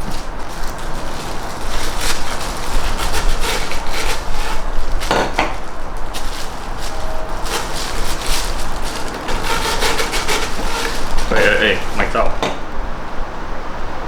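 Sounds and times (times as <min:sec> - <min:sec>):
rubbing and scraping handling noise: 0:00.0 - 0:12.8.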